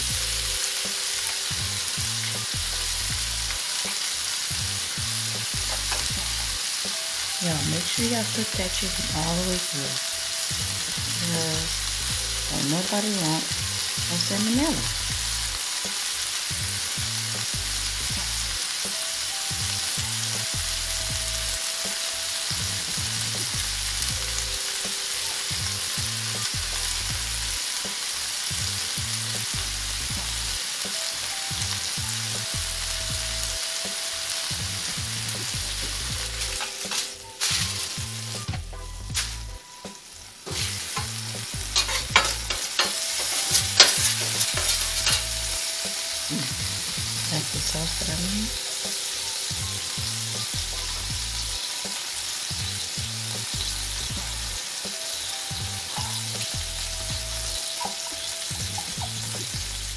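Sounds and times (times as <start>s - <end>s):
chicken sizzling on griddle: 0.0s - 59.9s
metal spatula scraping griddle: 36.4s - 38.0s, 40.5s - 45.6s.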